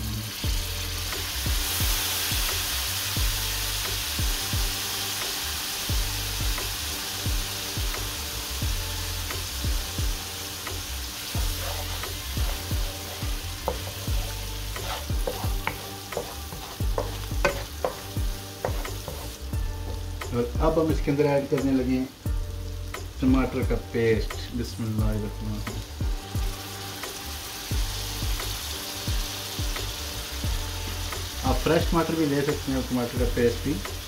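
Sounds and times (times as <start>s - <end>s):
vegetables sizzling in oil: 0.0s - 34.0s
wooden spatula knocking on pan: 11.7s - 20.1s.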